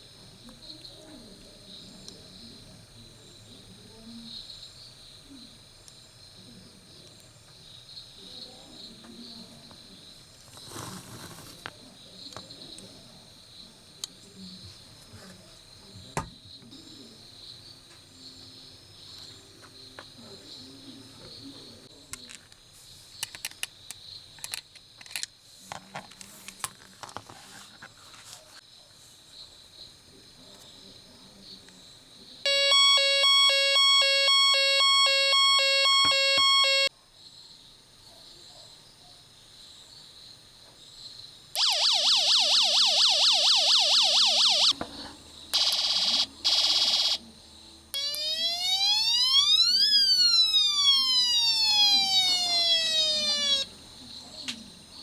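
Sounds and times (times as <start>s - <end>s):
fast yelping siren: 32.5s - 36.9s, 41.6s - 44.8s, 45.6s - 47.2s, 48.0s - 53.7s
pulsing beep alarm: 32.5s - 36.9s, 41.6s - 44.8s, 45.6s - 47.2s, 48.0s - 53.7s
wailing siren: 32.5s - 36.9s, 41.6s - 44.8s, 45.6s - 47.2s, 48.0s - 53.7s.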